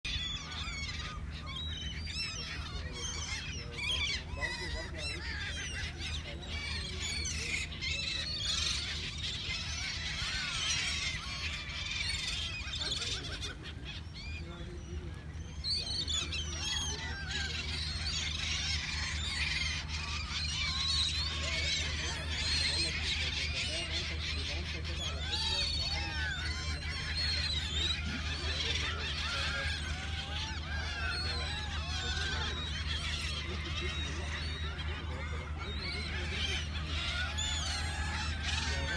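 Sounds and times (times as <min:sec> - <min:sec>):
seagulls calling: 0:00.0 - 0:38.9
steady low hum: 0:00.1 - 0:38.9.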